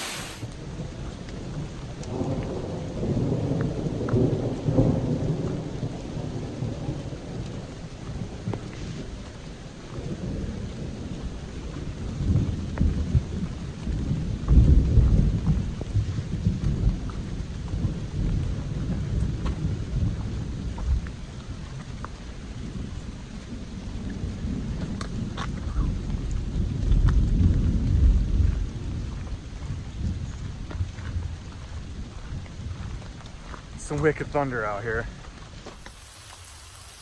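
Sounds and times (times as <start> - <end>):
heavy rain pouring: 0.0 - 0.5, 35.5 - 37.0.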